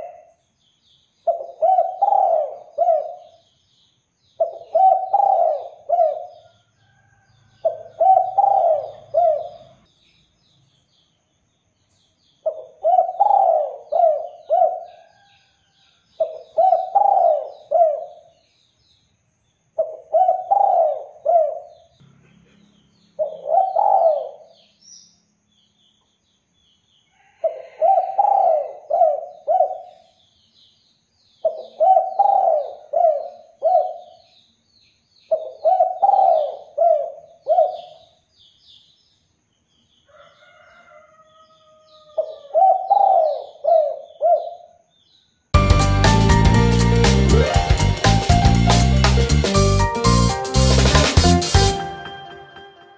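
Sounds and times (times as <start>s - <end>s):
dove cooing: 0.0s - 0.3s, 1.3s - 3.4s, 4.4s - 6.4s, 7.6s - 9.7s, 12.5s - 15.3s, 16.2s - 18.2s, 19.8s - 21.7s, 23.2s - 24.5s, 27.4s - 30.0s, 31.5s - 34.2s, 35.3s - 38.0s, 42.0s - 44.7s
small birds twittering: 0.0s - 45.5s.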